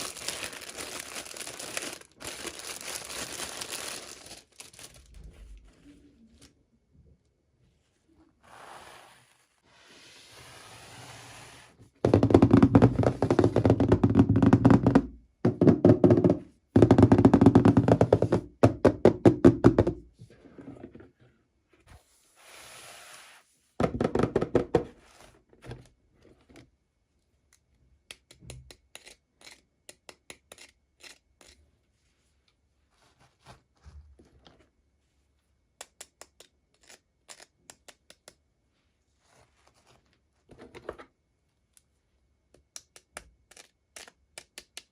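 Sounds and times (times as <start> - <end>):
toy packaging knocking and rattling: 0.0 - 4.9, 12.0 - 20.0
packaging rustling: 0.0 - 5.7.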